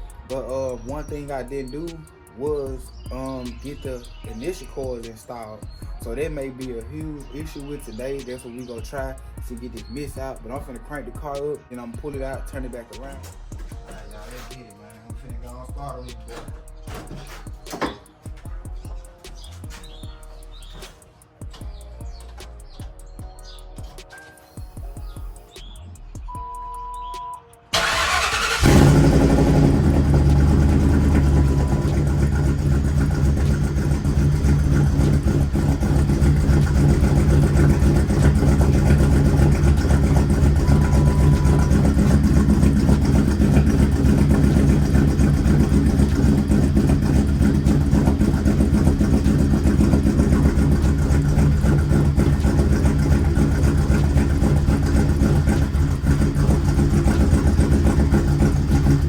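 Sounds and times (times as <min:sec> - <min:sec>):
car engine idling: 0:08.8 - 0:11.4, 0:12.3 - 0:21.0, 0:27.7 - 0:59.0
short beeps: 0:26.3 - 0:27.5.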